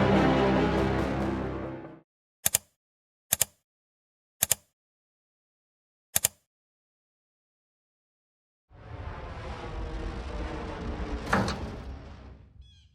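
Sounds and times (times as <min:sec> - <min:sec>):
background music: 0:00.0 - 0:02.0
sharp double clicks: 0:02.4 - 0:02.7, 0:03.3 - 0:03.6, 0:04.4 - 0:04.7, 0:06.2 - 0:06.4.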